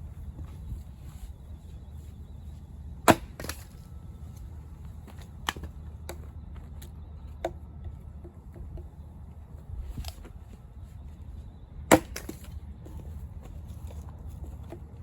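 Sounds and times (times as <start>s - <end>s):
low steady rumble: 0.0s - 15.0s
axe splitting logs: 3.0s - 3.8s, 11.9s - 12.6s.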